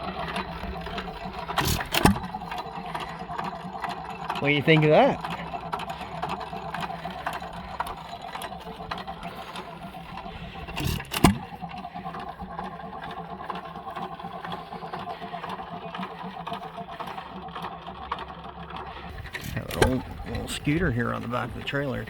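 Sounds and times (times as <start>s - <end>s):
engine bang: 0.0s - 13.2s, 18.8s - 22.0s
stationary engine clattering: 0.0s - 22.0s.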